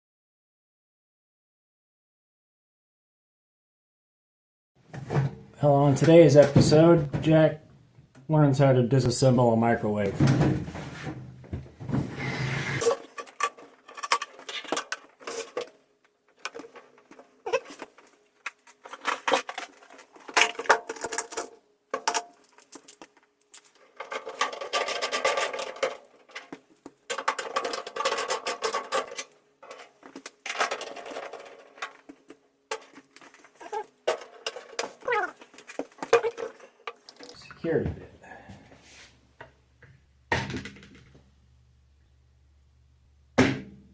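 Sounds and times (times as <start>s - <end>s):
small metal objects clattering: 12.8s - 15.8s, 16.4s - 37.4s.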